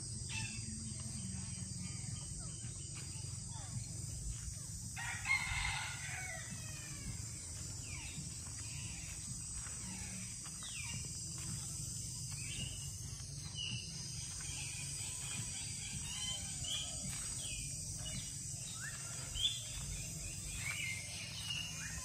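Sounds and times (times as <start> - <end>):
caged birds squawking: 4.9 - 22.0.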